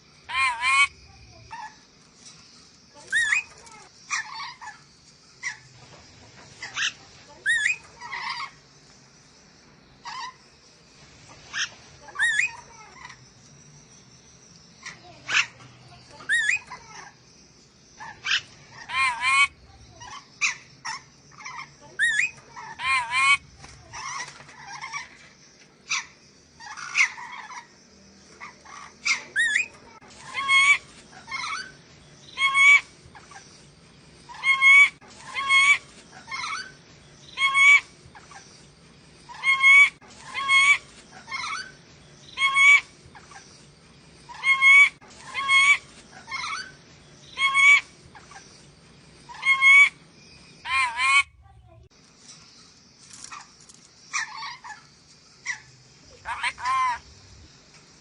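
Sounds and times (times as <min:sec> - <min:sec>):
parrot calling loudly: 0:00.3 - 0:01.8, 0:18.0 - 0:25.1, 0:25.9 - 0:27.7, 0:28.4 - 0:31.7, 0:32.4 - 0:33.4, 0:34.3 - 0:36.7, 0:37.3 - 0:38.4, 0:39.3 - 0:41.7, 0:42.4 - 0:43.4, 0:44.3 - 0:48.4, 0:49.3 - 0:50.0, 0:50.6 - 0:51.4, 0:54.1 - 0:54.8, 0:55.4 - 0:57.1.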